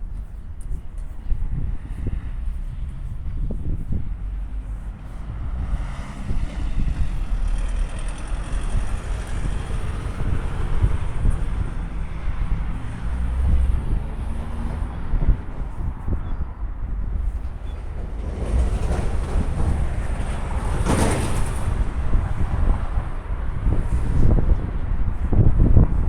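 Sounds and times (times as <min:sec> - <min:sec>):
low rumble: 0:00.0 - 0:26.0
wind on microphone: 0:00.0 - 0:26.0
train passing: 0:04.3 - 0:15.8, 0:16.6 - 0:25.3.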